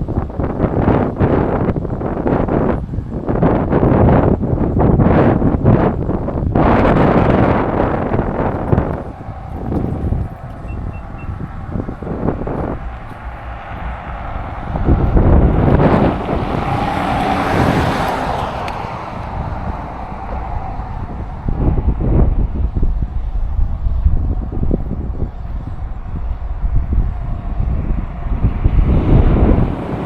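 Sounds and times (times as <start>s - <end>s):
vehicle passing with tyre noise: 0.0s - 30.0s
wind buffeting microphone: 0.0s - 30.0s.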